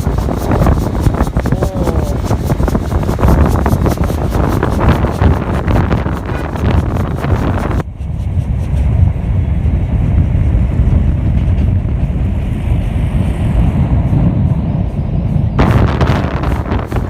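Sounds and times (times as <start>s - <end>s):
muffled vehicle rumble: 0.0s - 17.0s
bright gusty sound: 12.2s - 17.0s.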